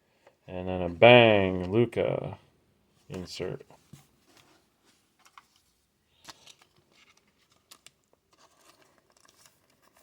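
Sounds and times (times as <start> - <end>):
trading cards clicking and rustling: 6.2 - 10.0.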